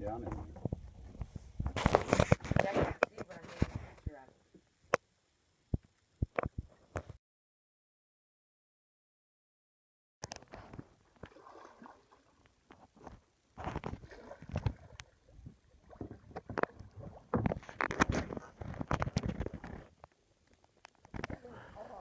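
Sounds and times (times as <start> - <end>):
paddle strokes splashing water: 11.1 - 13.0, 13.9 - 18.6.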